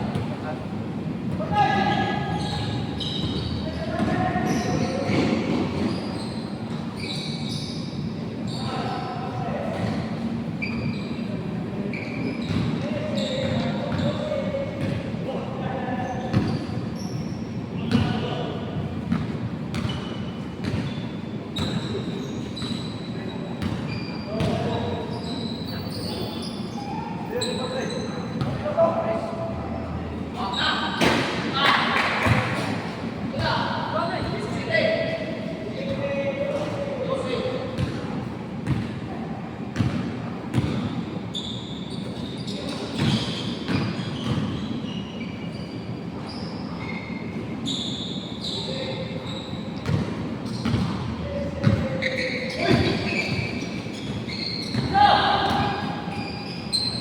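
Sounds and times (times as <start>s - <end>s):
sneakers squeaking on floor: 0.0s - 39.0s, 39.6s - 57.0s
short high squeaks: 5.8s - 8.9s, 10.6s - 11.3s, 19.9s - 28.4s, 41.3s - 49.8s, 51.9s - 55.0s, 55.9s - 57.0s
basketball bouncing on court: 12.4s - 14.2s, 14.8s - 15.0s, 16.3s - 16.7s, 19.1s - 21.0s, 23.6s - 24.8s, 37.8s - 39.0s, 39.8s - 41.0s, 42.7s - 44.6s, 49.8s - 56.4s
basketball bouncing: 39.8s - 40.9s, 49.8s - 51.9s.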